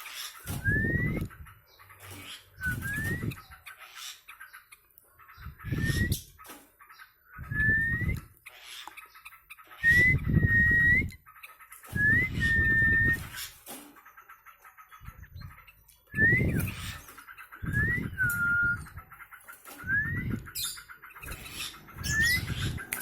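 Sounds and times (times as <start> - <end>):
short whistles: 0.5 - 1.2, 2.6 - 3.3, 7.5 - 8.3, 9.8 - 11.2, 11.9 - 13.4, 16.2 - 17.0, 17.7 - 18.9, 19.8 - 20.4.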